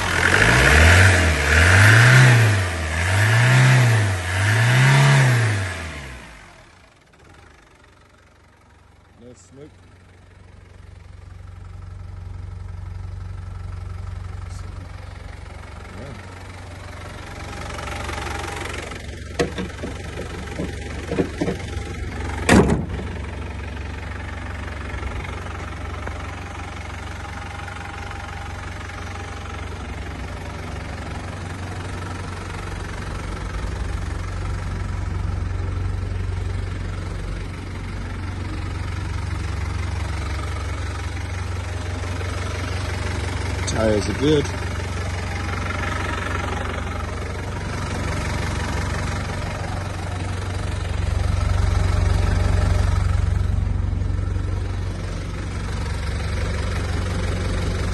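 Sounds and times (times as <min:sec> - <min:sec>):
diesel engine idling: 0:00.0 - 0:57.9
knocks: 0:19.4 - 0:23.1.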